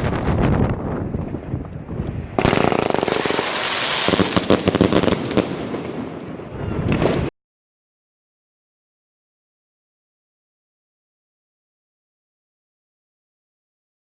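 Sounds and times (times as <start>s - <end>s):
fireworks crackling: 0.0s - 7.3s
fireworks cake firing shots: 2.4s - 7.3s.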